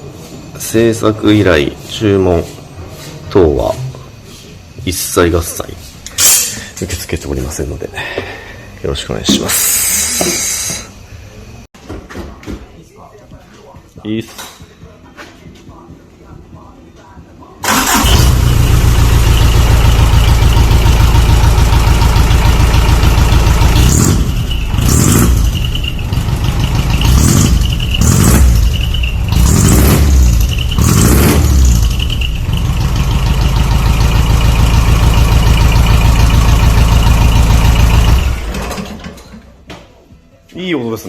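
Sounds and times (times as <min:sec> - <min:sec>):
diesel engine idling: 0:17.6 - 0:39.0
engine revving: 0:17.6 - 0:39.0.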